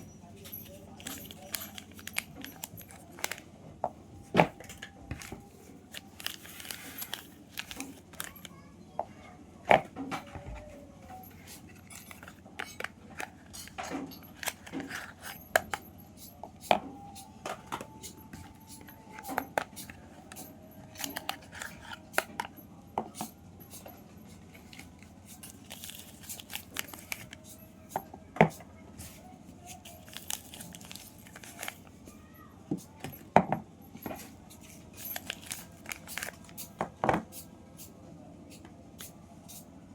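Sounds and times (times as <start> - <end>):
packaging crinkling and tearing: 0.8 - 3.4, 5.8 - 8.5, 24.7 - 27.4, 29.7 - 31.9, 34.7 - 36.7
packaging snaps: 1.0 - 3.4, 5.9 - 8.5, 17.8 - 22.3, 24.7 - 27.5, 29.8 - 31.9, 34.6 - 36.7.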